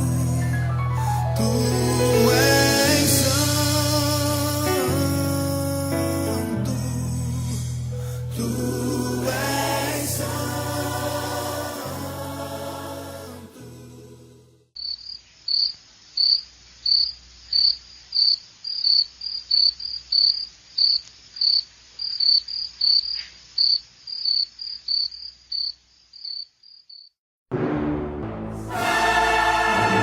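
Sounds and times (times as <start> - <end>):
cricket chirping: 14.8 - 27.2.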